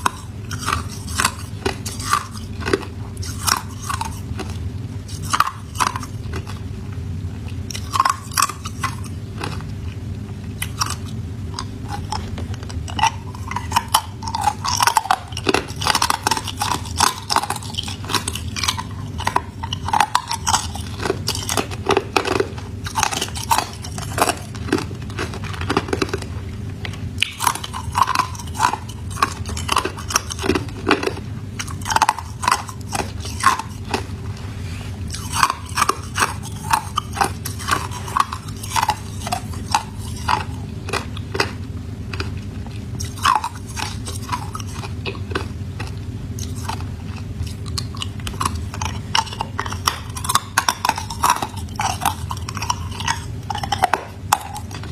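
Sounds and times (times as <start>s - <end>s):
person chewing ice: 0.0s - 6.7s, 7.3s - 54.9s.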